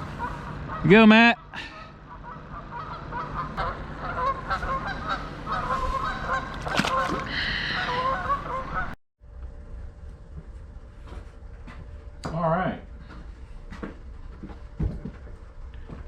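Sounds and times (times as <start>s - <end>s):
geese honking: 0.0s - 9.0s.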